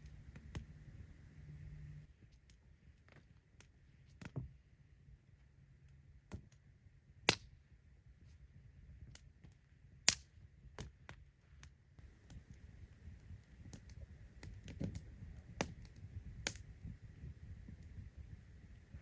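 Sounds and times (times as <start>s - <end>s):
campfire crackling: 10.1s - 10.3s, 12.0s - 17.0s.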